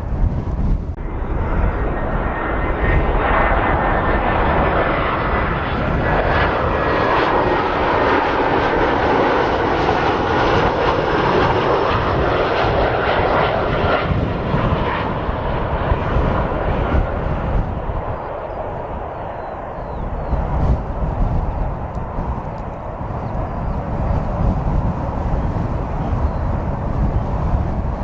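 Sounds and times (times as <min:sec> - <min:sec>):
jet engines passing: 0:00.0 - 0:28.0.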